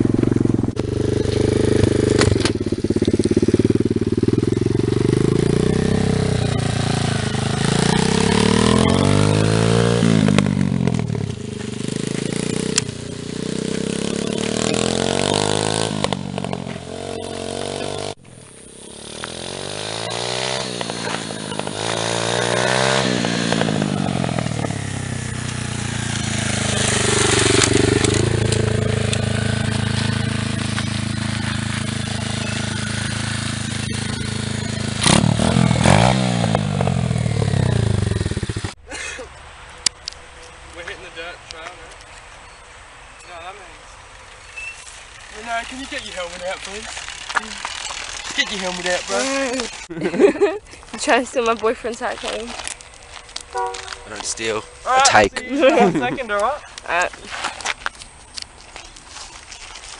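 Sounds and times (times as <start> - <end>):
motorbike engine revving: 0.0 - 38.8.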